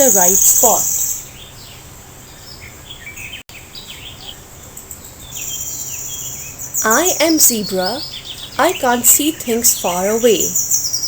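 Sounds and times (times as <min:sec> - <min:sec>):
insect buzz: 0:00.0 - 0:03.0
small birds chirping: 0:00.0 - 0:11.0.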